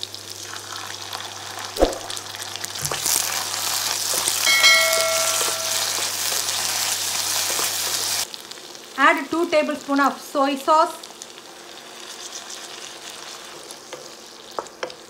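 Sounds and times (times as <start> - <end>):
vegetables sizzling in a wok: 0.0 - 15.0
knock: 1.8 - 2.1
bell-like notification chime: 4.5 - 6.1.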